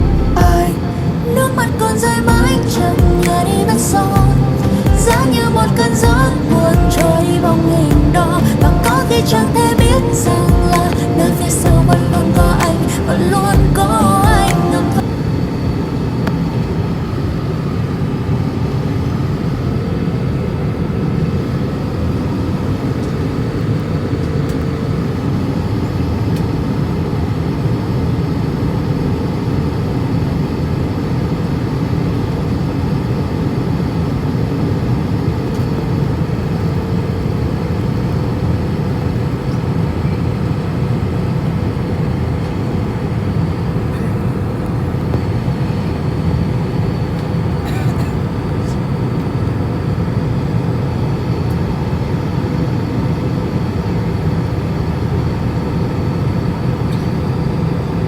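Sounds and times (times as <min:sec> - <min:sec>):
faint steady tones: 0:00.0 - 0:21.2
airliner cabin drone: 0:00.0 - 0:58.0.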